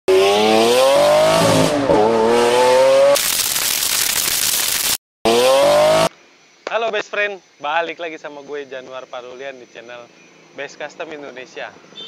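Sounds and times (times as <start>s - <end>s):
car engine revving: 0.1s - 3.4s, 5.3s - 6.1s.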